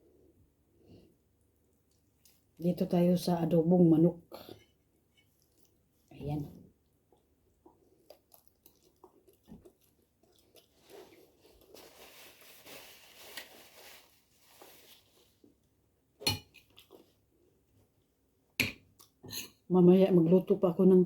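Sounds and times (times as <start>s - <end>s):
soft chewing: 0.1s - 2.6s, 4.3s - 13.6s, 16.4s - 18.2s, 18.9s - 19.6s.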